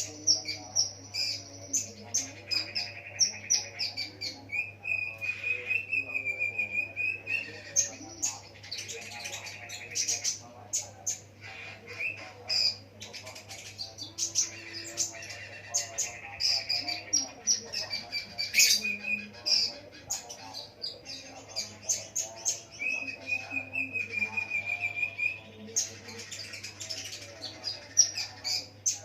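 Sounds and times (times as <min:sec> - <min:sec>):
lovebird chirping and trilling: 0:11.0 - 0:29.0.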